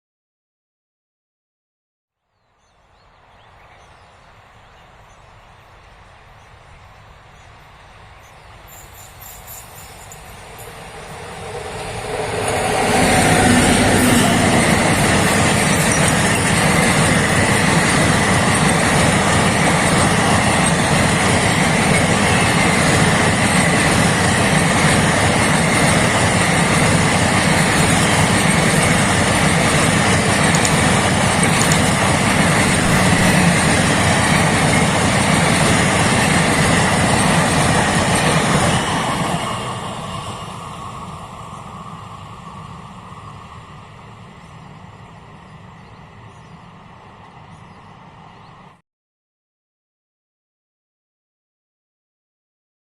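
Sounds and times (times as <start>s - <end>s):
train rushing past: 4.2s - 48.8s
wheels roaring on rails: 7.6s - 48.8s.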